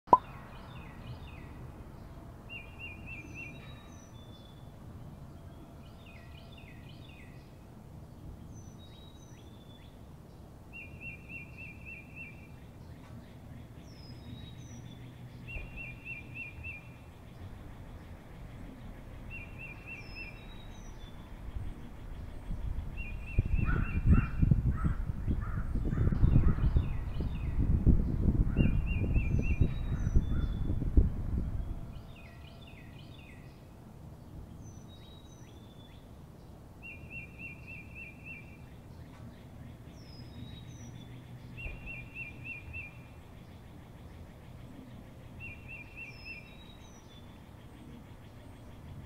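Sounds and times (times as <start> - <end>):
low background noise: 0.1 - 49.0
high bird chirps: 36.8 - 43.1.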